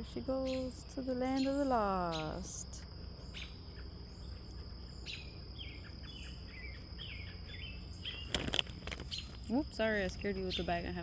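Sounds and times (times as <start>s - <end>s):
small birds chirping: 0.0s - 11.0s
rustle: 1.7s - 11.0s.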